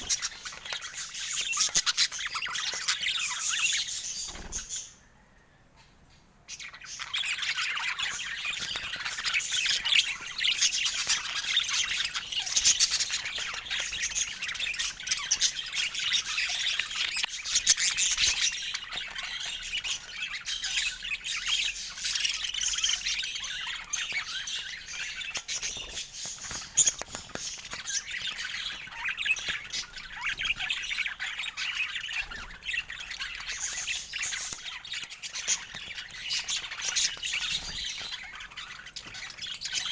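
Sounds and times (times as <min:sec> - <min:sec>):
budgerigars chattering: 0:00.0 - 0:05.0, 0:06.5 - 0:39.9.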